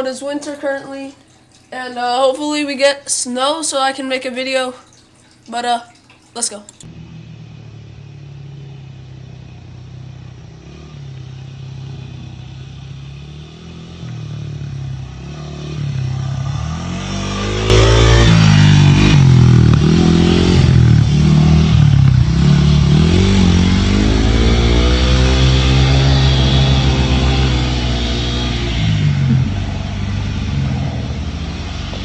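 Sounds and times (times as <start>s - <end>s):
motorcycle engine revving: 6.8s - 32.0s.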